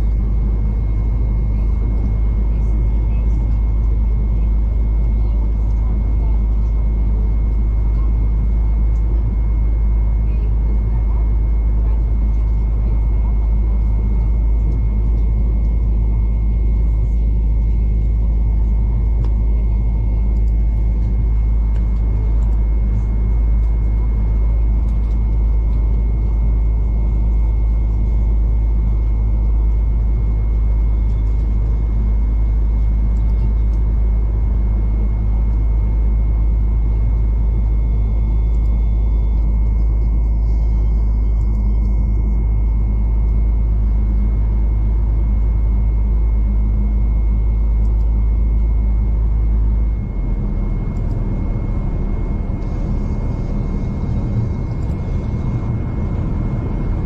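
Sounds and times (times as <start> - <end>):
train rumbling inside carriage: 0.0 - 45.9, 47.2 - 57.0
high whine: 17.2 - 57.0.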